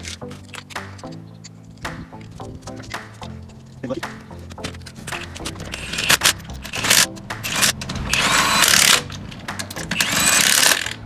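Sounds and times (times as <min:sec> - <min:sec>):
power tool whining: 0:05.7 - 0:11.0.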